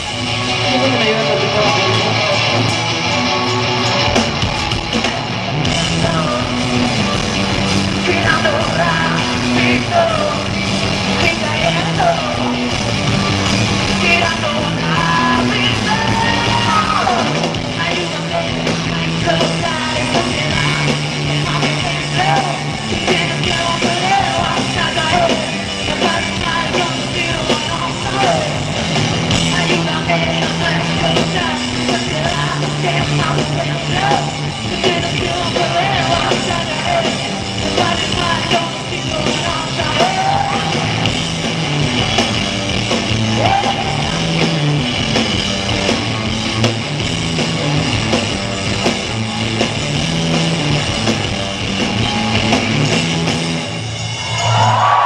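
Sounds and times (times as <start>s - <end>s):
bass line: 0.0s - 55.0s
rock band playing: 0.0s - 55.0s
person singing: 5.6s - 7.1s, 8.0s - 10.5s, 11.1s - 12.8s, 14.0s - 28.6s, 29.4s - 41.1s.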